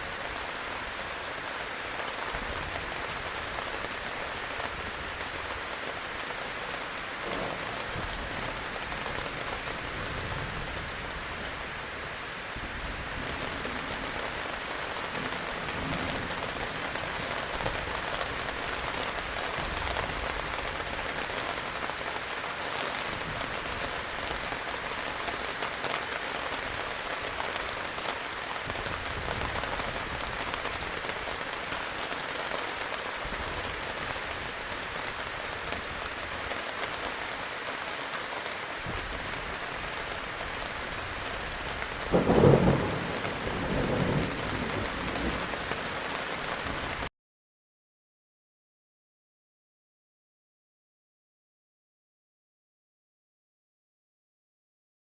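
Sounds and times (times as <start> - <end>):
heavy rain falling: 0.0 - 47.1
faint low thunder rumbles: 41.0 - 46.0
loud thunderclap: 42.1 - 45.6.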